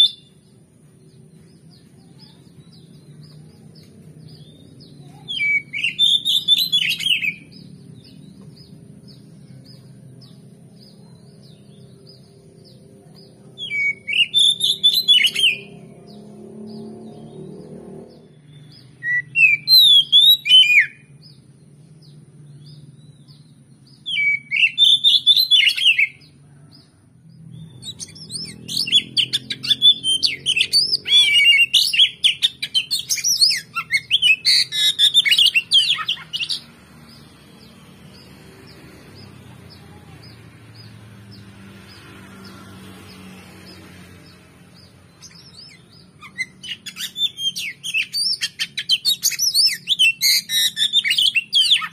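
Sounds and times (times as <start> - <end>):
songbird whistles and chirps: 0.0 - 12.4, 13.0 - 17.4, 18.2 - 21.3, 22.6 - 26.3, 27.6 - 37.2, 44.8 - 51.9.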